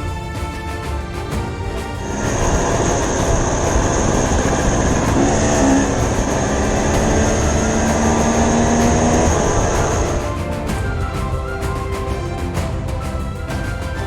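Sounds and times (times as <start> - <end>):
steady rushing noise: 0.0 - 14.0
dirt bike engine running: 2.1 - 10.3.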